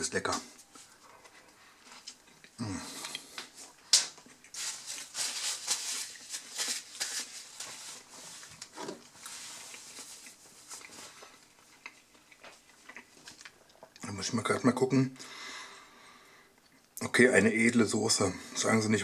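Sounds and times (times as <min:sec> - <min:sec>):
crackly chewing: 0:00.2 - 0:15.0.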